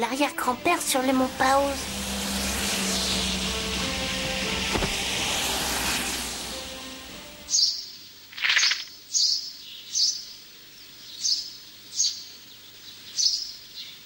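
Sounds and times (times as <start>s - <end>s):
bird chirping: 7.4s - 14.0s.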